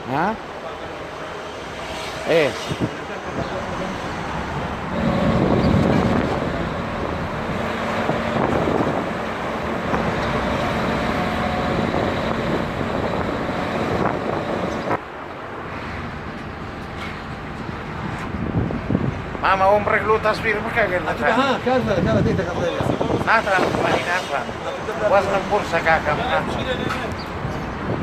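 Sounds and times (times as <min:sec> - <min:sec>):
street traffic noise: 0:00.0 - 0:28.0
engine running: 0:03.0 - 0:15.0.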